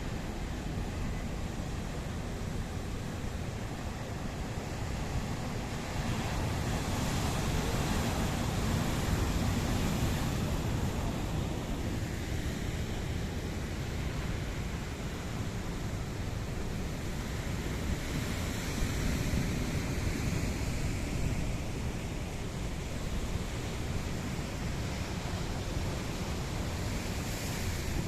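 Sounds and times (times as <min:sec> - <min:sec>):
wind rumbling on microphone: 0:00.1 - 0:28.0
sea waves breaking on beach: 0:16.2 - 0:28.0.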